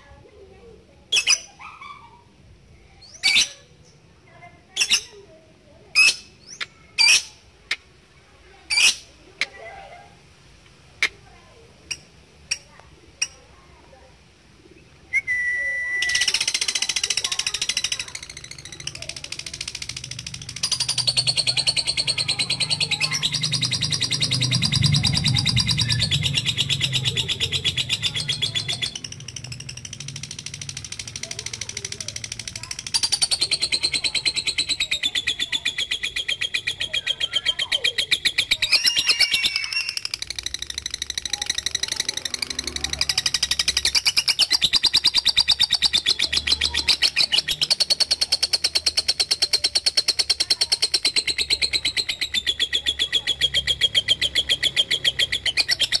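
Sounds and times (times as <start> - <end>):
lovebird squawking: 1.1 - 2.2, 15.6 - 56.0.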